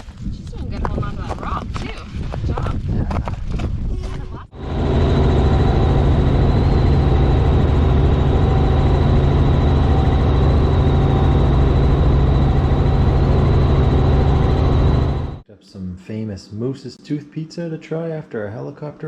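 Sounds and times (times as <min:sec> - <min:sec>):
helicopter deep drone: 0:04.3 - 0:15.4
high whine: 0:04.4 - 0:15.4.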